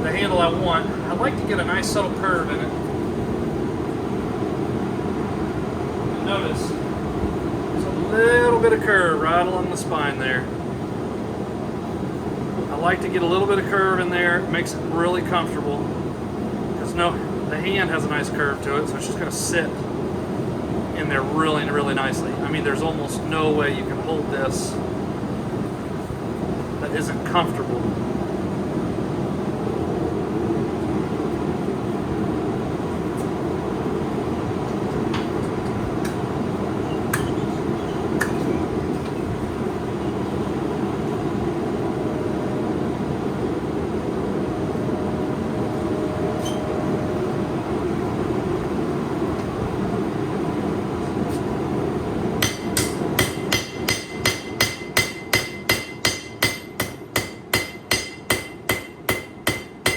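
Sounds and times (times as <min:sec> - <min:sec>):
hammer ringing on anvil: 0:52.4 - 0:59.9.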